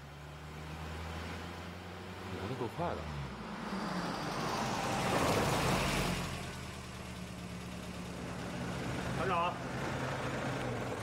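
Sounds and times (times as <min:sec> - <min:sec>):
vehicle engine idling: 0:05.6 - 0:11.0.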